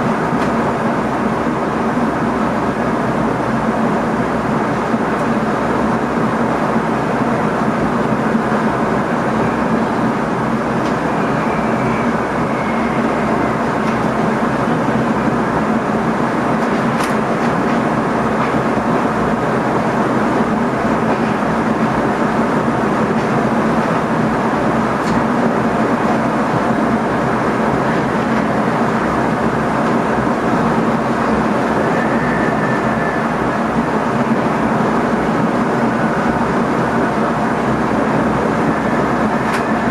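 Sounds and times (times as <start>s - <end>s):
train running noise in cab: 0.0s - 39.9s
high squeals: 11.2s - 13.6s.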